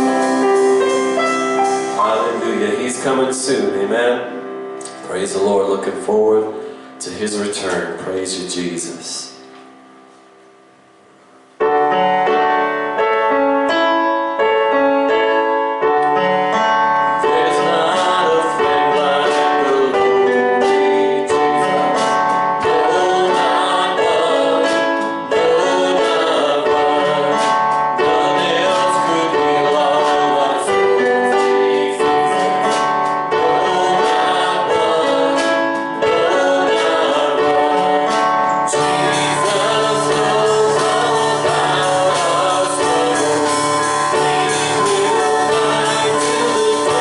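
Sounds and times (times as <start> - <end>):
bass: 0.0 - 9.6, 15.8 - 47.0
piano sustained chords: 0.0 - 47.0
voices singing: 1.7 - 4.3, 17.2 - 47.0.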